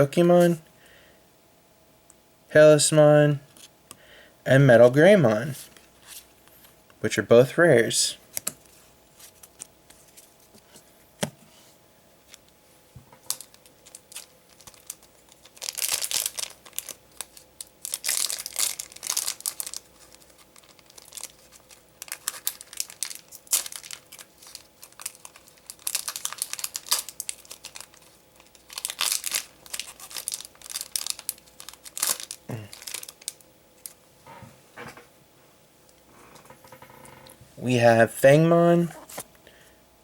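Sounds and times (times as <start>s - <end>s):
foil wrappers crinkling and tearing: 13.2s - 34.0s.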